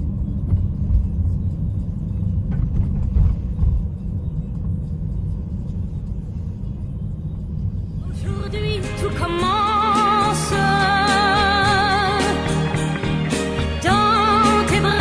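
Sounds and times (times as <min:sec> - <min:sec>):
road and engine rumble: 0:00.0 - 0:15.0
vehicle bump: 0:00.3 - 0:01.6, 0:02.3 - 0:04.8.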